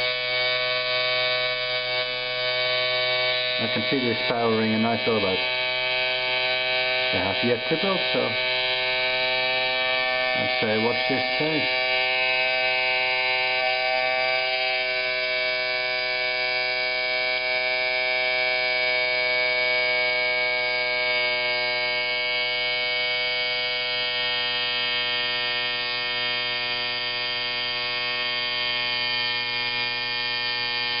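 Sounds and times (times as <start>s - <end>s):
steam engine running fast: 6.9s - 9.7s.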